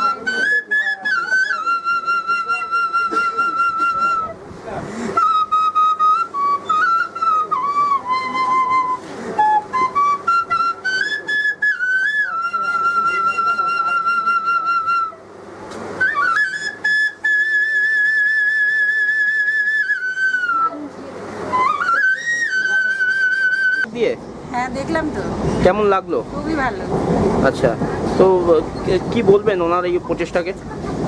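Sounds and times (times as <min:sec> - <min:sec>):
nose flute melody: 0:00.0 - 0:04.4, 0:05.0 - 0:15.3, 0:15.9 - 0:23.9.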